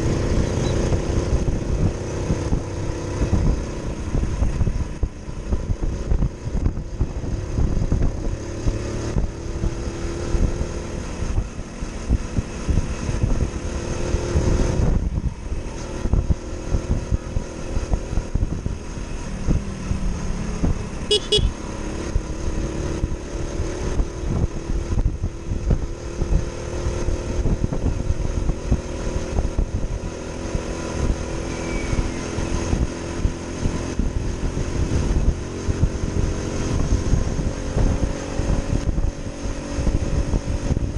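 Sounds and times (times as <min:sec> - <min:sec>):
wind buffeting: 0:00.0 - 0:21.0, 0:22.0 - 0:40.9
motorcycle engine running: 0:00.0 - 0:40.9
high-pitched beep: 0:21.1 - 0:21.5.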